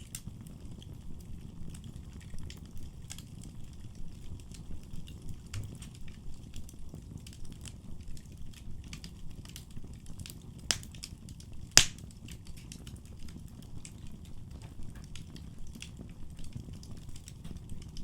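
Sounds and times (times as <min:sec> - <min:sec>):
wood fire crackling: 0:00.0 - 0:18.0
sharp pops of fire: 0:08.9 - 0:18.0.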